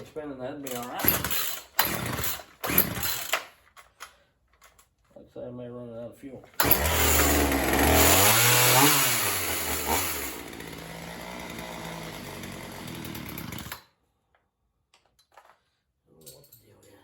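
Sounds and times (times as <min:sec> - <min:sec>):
chainsaw revving and idling: 0:00.7 - 0:03.4, 0:06.6 - 0:13.8.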